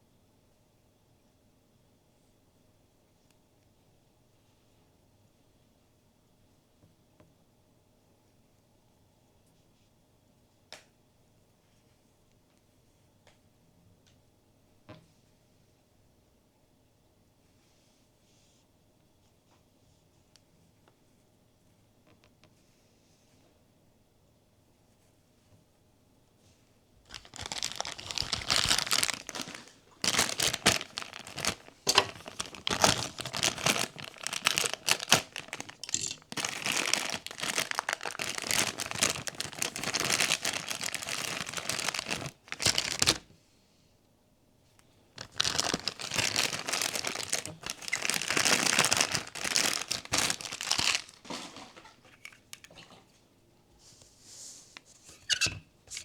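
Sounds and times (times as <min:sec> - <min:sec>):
plastic wrap crinkling and tearing: 0:27.1 - 0:43.3, 0:45.2 - 0:52.2.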